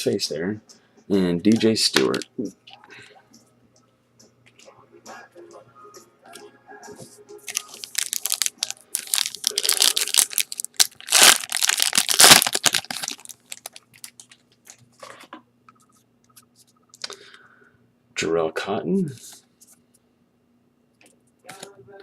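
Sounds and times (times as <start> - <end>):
wrapper tearing and crinkling: 7.5 - 14.8.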